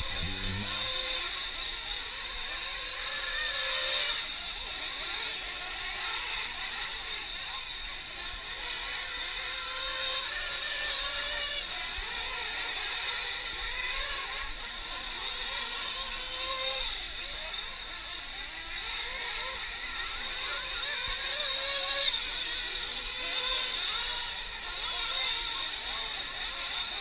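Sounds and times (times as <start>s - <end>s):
rc truck engines whining: 0.0s - 27.0s.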